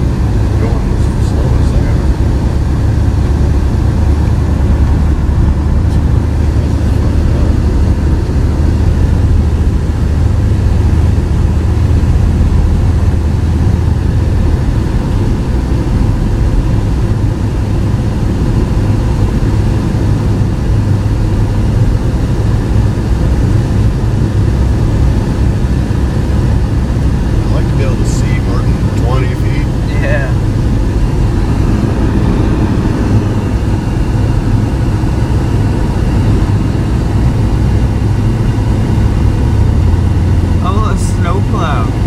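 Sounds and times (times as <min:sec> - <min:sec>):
car engine and tyres on road: 0:00.0 - 0:42.0.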